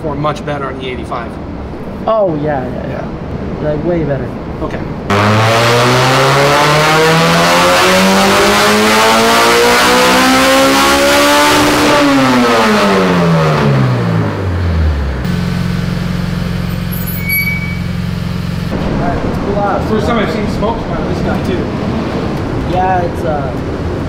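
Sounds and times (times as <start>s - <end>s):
car engine revving: 5.1s - 24.0s.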